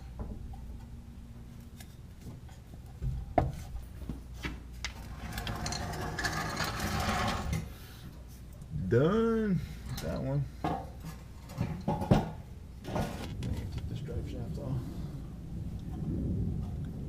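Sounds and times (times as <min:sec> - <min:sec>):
rasping rubbing noise: 0:05.1 - 0:07.9.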